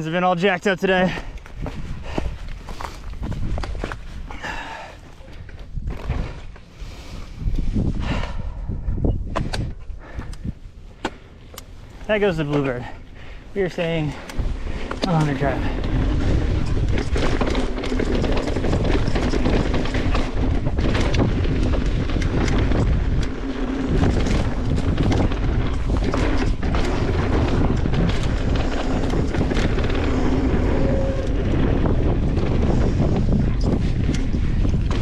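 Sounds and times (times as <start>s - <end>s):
wind buffeting microphone: 0.8s - 35.0s
bike rattling and knocking: 1.0s - 6.7s, 12.0s - 35.0s
tyres rolling over dirt: 13.8s - 35.0s.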